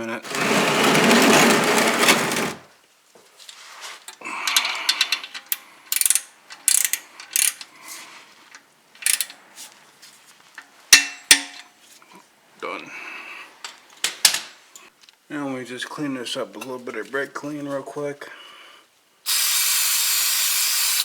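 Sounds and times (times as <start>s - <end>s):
torque wrench ratchet clicking: 5.9s - 7.6s, 9.0s - 9.3s.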